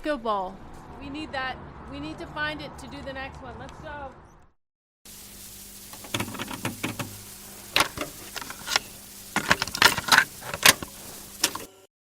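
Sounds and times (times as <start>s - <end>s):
sharp clicks and knocks: 6.0s - 7.2s.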